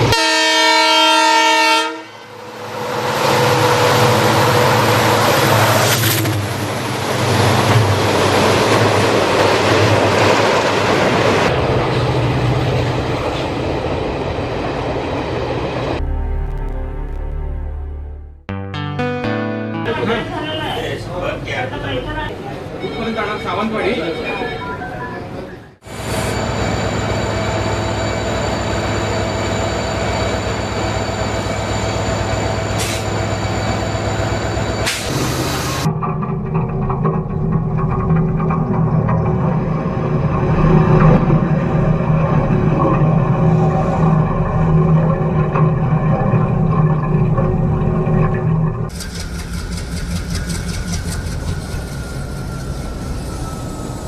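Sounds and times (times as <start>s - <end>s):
train rumbling on rails: 0.0s - 16.3s, 24.3s - 54.0s
music: 16.0s - 20.6s
whining tones: 47.4s - 54.0s.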